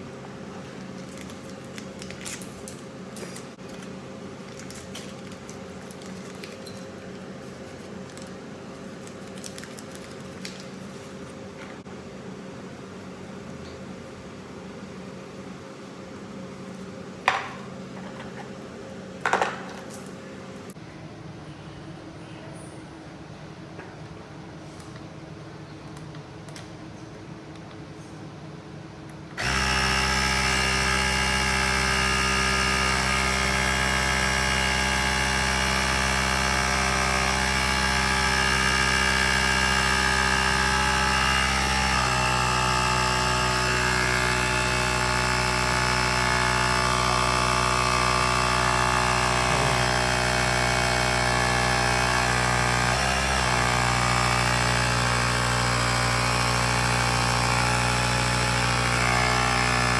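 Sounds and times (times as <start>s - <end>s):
electric compressor running: 29.4s - 59.9s.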